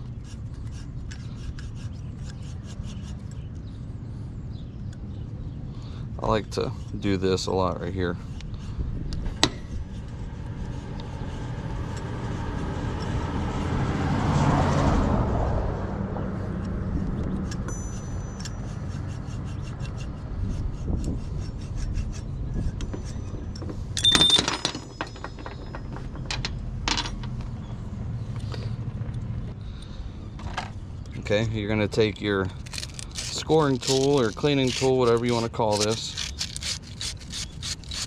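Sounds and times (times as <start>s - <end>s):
loud metallic clink: 24.0s - 26.1s
wire brush scraping metal: 32.6s - 38.0s.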